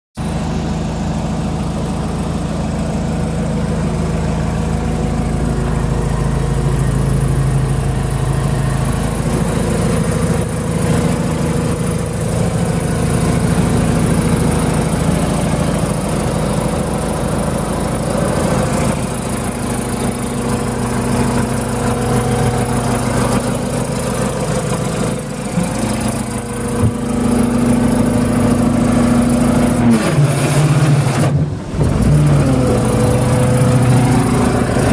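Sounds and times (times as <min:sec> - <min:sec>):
diesel engine running: 0:00.2 - 0:34.9.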